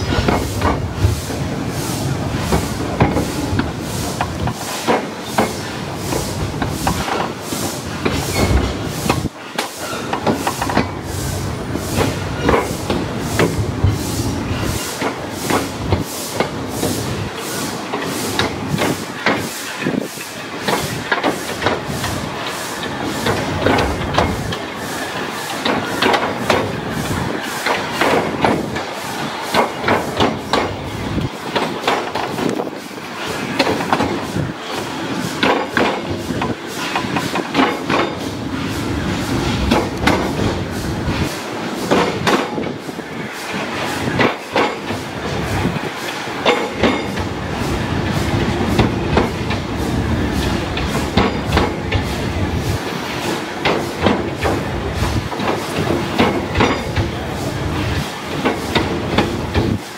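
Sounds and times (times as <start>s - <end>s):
steam train rumble: 0.0s - 59.9s
wheels clacking over rail joints: 17.8s - 38.4s, 41.2s - 42.8s, 43.5s - 47.4s, 48.3s - 59.8s.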